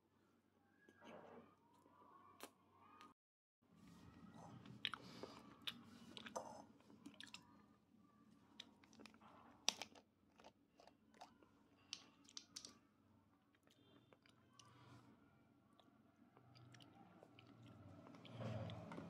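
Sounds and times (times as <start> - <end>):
chewing clicks and crunches: 4.8 - 7.5, 8.6 - 12.8, 13.5 - 14.8, 15.7 - 18.4.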